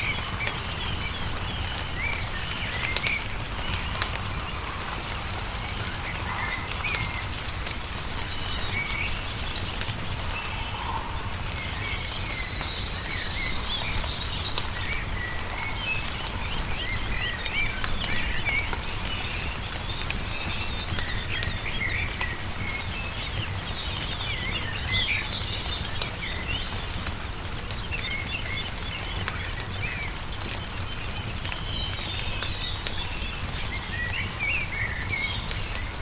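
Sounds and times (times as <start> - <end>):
songbirds chirping and trilling: 0.0 - 36.0
wood fire crackling and popping: 0.0 - 36.0
steady low rumble: 2.6 - 18.0.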